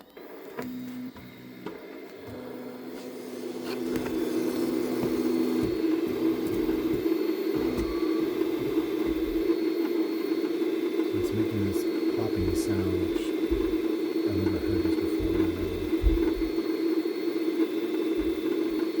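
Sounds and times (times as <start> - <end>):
three d printer heating noise: 0.0 - 19.0
faint pops: 14.7 - 16.6.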